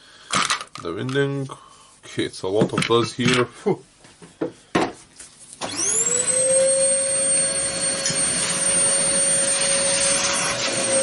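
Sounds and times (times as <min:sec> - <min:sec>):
vacuum cleaner running: 0:05.6 - 0:11.0.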